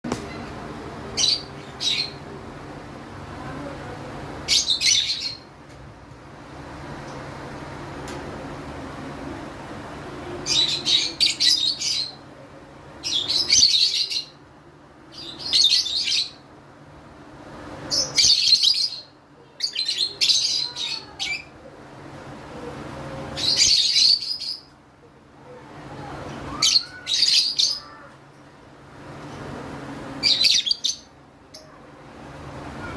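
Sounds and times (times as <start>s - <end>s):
lovebirds chirping: 30.2s - 31.8s.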